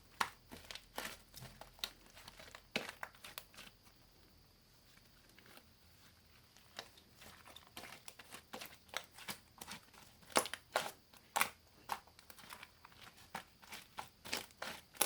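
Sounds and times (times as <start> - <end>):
slime crackling and popping: 6.7 - 15.0.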